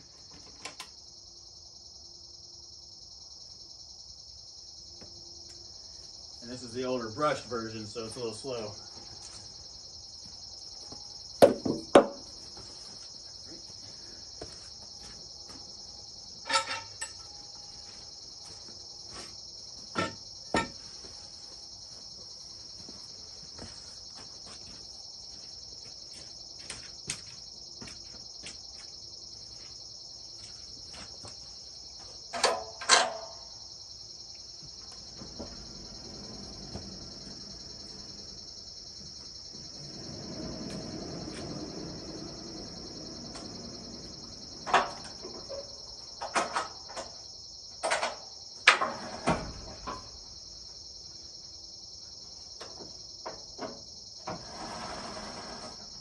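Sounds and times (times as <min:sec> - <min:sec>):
insects chirring: 0:00.0 - 0:56.0
sharp knocks and clunks: 0:11.4 - 0:12.7, 0:19.8 - 0:21.2, 0:32.0 - 0:33.5, 0:34.6 - 0:38.3, 0:39.0 - 0:47.2, 0:47.8 - 0:50.3, 0:52.6 - 0:54.4.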